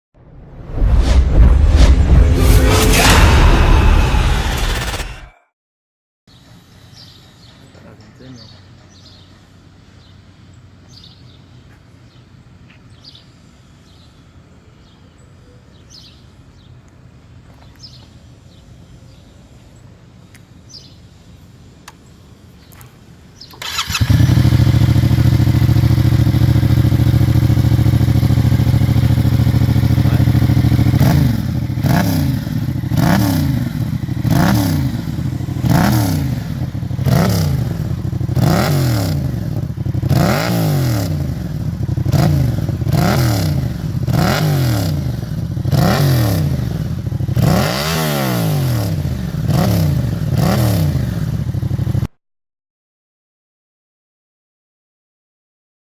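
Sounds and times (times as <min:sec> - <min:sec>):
motorcycle engine idling and revving: 0:23.4 - 0:52.1.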